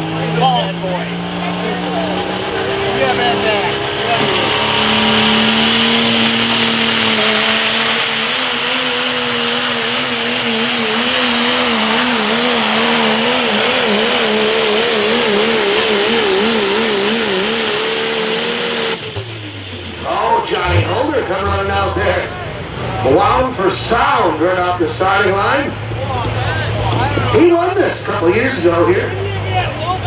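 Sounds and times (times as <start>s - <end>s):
diesel truck engine at full throttle: 0.0s - 30.0s
high turbo whistle: 1.8s - 22.2s.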